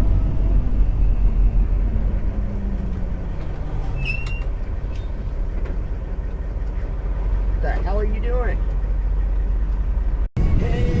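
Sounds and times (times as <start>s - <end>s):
truck engine rumble and road noise: 0.0s - 11.0s
brief high squeak: 3.8s - 5.2s.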